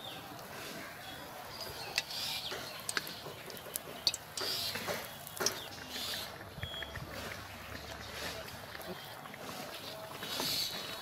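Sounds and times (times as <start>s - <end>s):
batter sizzling in hot oil: 1.8s - 8.2s.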